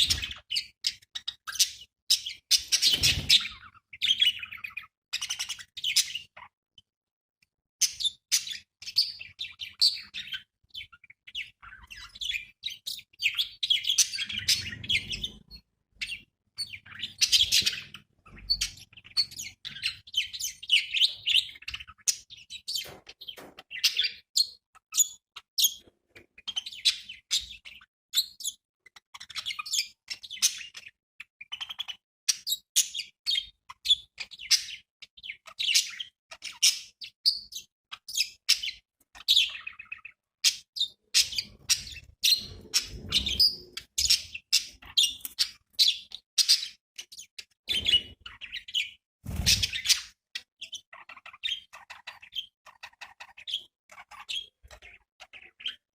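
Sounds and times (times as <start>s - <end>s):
budgerigars chirping: 0.0s - 6.5s, 7.8s - 55.8s
wings fluttering: 2.8s - 3.6s, 49.2s - 49.9s.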